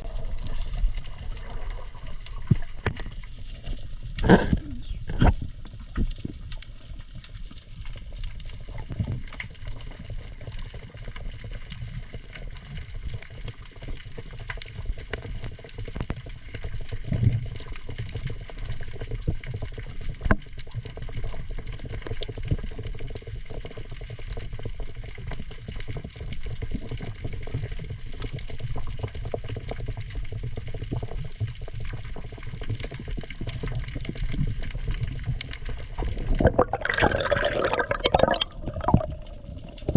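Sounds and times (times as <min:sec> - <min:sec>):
water sloshing and gurgling: 0:00.0 - 0:18.2, 0:30.1 - 0:39.9
low underwater rumble: 0:31.3 - 0:39.9.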